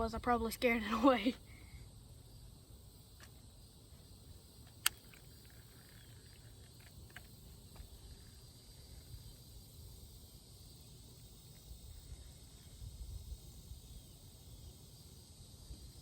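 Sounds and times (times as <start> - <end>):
high insect drone: 0.0 - 16.0
faint ticks: 4.6 - 9.2.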